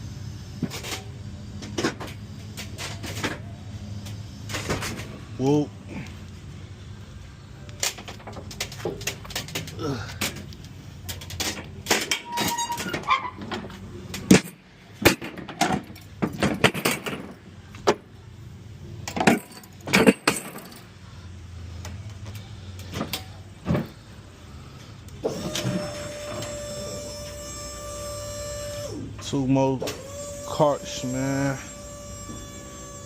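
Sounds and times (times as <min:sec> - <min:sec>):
metal carts clanking and rattling: 0:04.5 - 0:05.2, 0:07.8 - 0:18.1, 0:19.0 - 0:21.0.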